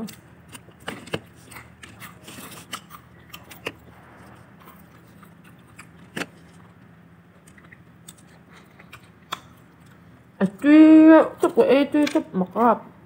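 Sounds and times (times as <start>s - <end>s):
crunchy chewing of fried chicken: 0.0s - 10.4s
low steady hum: 0.0s - 13.0s.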